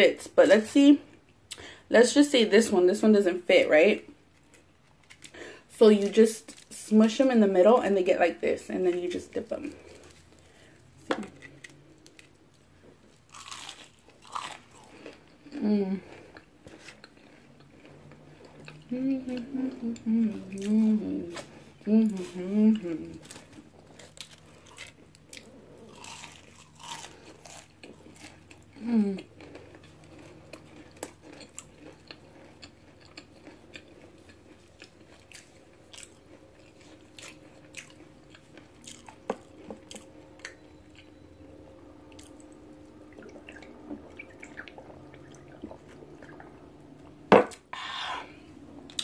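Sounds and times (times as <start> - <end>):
chewing and crunching: 9.0 - 46.6.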